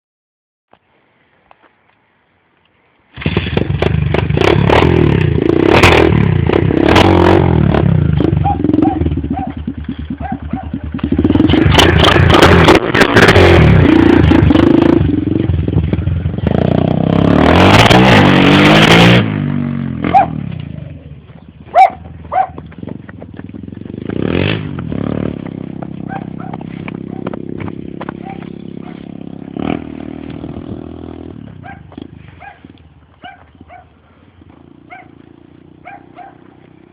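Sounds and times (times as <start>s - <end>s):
pit bike engine revving: 3.2s - 32.8s.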